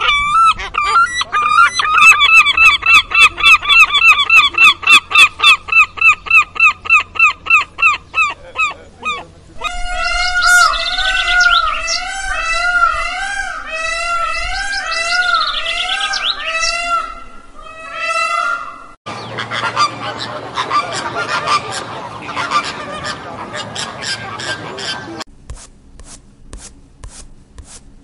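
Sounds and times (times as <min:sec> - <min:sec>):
birds chirping: 0:00.0 - 0:25.3.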